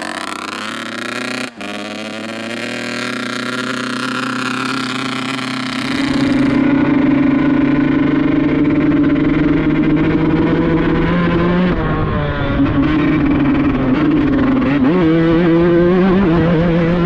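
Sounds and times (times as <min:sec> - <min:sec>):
buzzy two-stroke engine revving: 0:00.0 - 0:11.7.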